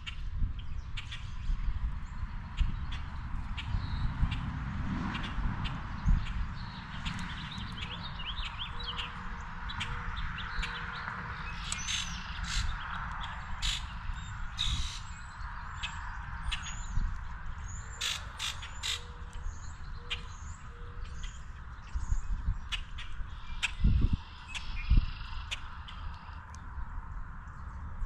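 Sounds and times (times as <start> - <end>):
birds chirping: 5.1 - 28.0
harsh bird calls: 6.1 - 26.4.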